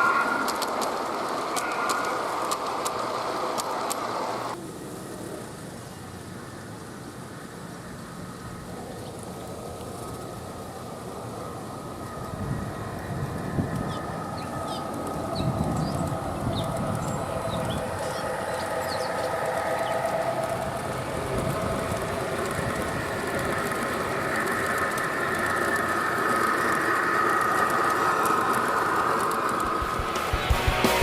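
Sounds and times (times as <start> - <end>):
birds chirping: 0.0 - 3.8, 13.7 - 29.6
model train humming and whining: 0.0 - 31.0.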